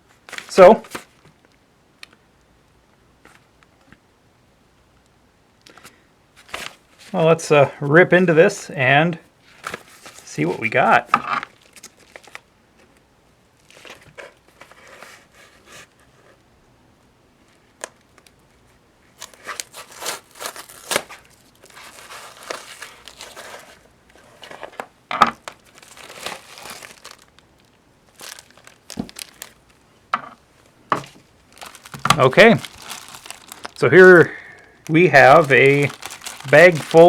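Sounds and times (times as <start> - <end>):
packaging tearing and crinkling: 11.4 - 12.4, 19.2 - 29.8, 31.5 - 34.0, 34.8 - 37.0
packaging snapping: 25.4 - 27.4, 28.1 - 29.7, 31.0 - 33.8, 34.8 - 37.0.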